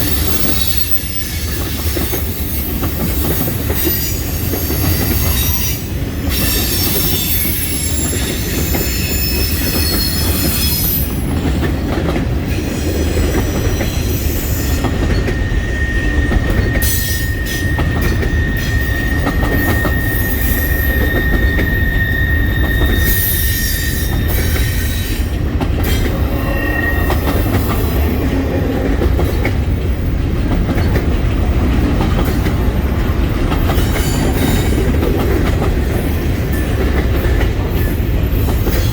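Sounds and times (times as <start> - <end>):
train wheels rumbling on rail: 0.0 - 38.9
high-pitched wheel squeals: 3.8 - 11.2, 14.0 - 25.2, 25.8 - 28.2.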